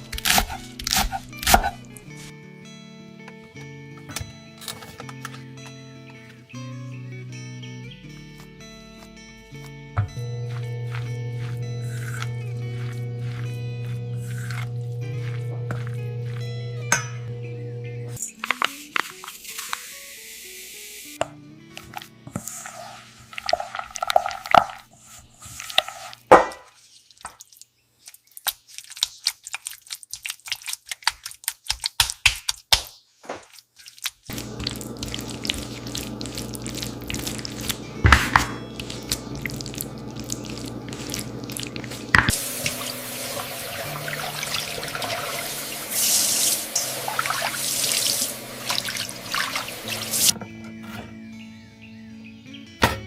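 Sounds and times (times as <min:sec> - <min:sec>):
water dripping and running: 0:22.4 - 0:24.9, 0:27.0 - 0:32.1, 0:33.4 - 0:37.9, 0:38.8 - 0:50.3
kitchen handling clicks and knocks: 0:52.8 - 0:53.0.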